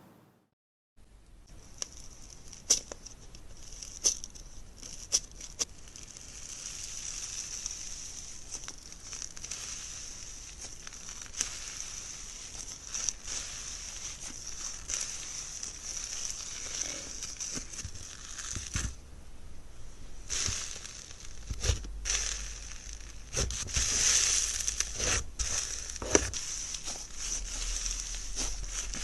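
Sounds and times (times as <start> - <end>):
slime crackling fizz: 1.6 - 19.0, 20.2 - 29.0
slime popping: 20.3 - 29.0.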